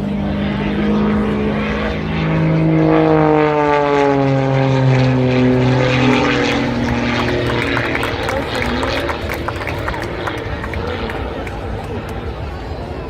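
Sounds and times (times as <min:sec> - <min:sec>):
propeller plane flying past: 0:00.0 - 0:13.0.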